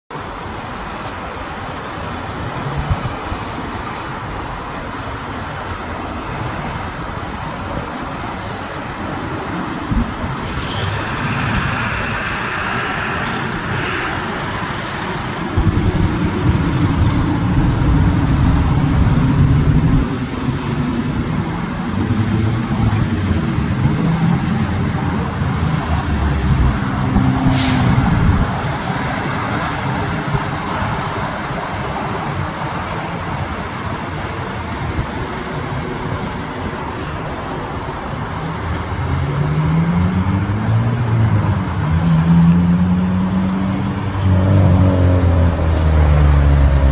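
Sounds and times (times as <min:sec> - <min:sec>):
jet engines running: 0:06.6 - 0:39.9.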